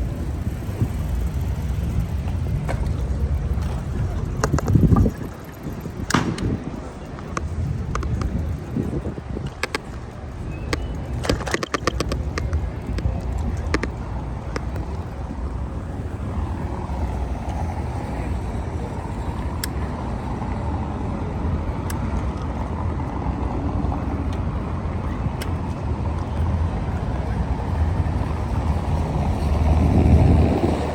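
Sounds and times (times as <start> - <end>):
sharp clicks and rattles: 0.0 - 15.6
street traffic rumble: 0.0 - 30.9.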